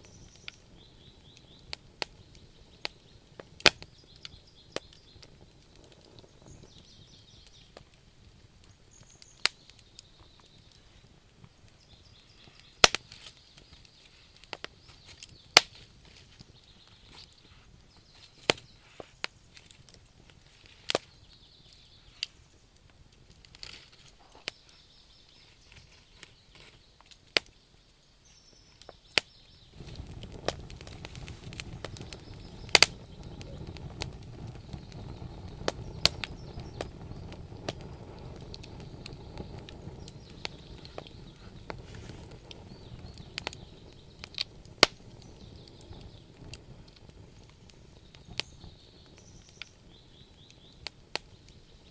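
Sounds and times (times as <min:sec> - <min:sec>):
wood fire crackling: 0:00.0 - 0:51.9
steady low rush: 0:29.8 - 0:47.0.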